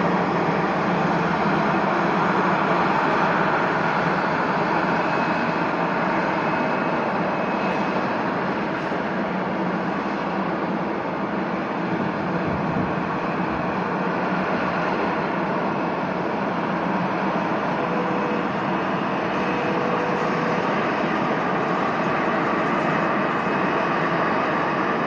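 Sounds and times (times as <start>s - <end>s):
jet engines rushing: 0.0s - 25.0s.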